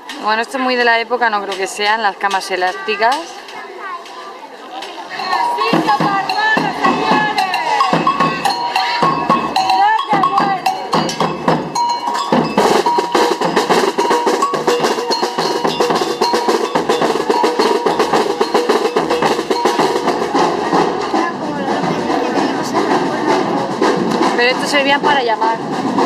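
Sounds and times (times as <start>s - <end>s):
metal bells ringing and clanking: 5.1s - 21.1s.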